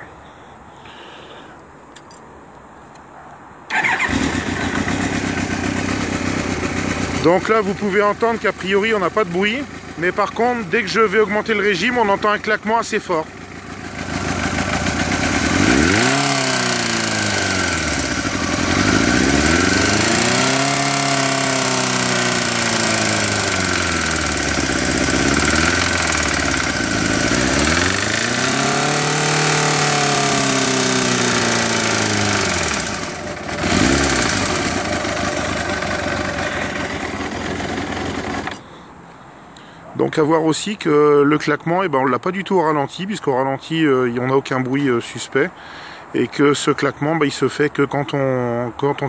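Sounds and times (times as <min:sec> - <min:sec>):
engine revving: 0:03.7 - 0:38.6
loud engine clatter: 0:13.2 - 0:38.7.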